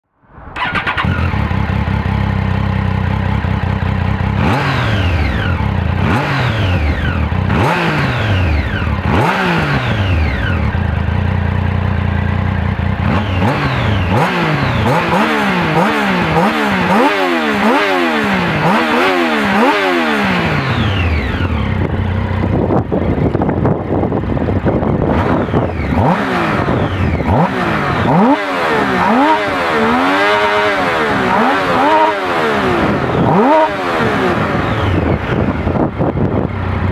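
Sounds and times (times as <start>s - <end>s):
motorcycle engine idling and revving: 0.3s - 36.9s.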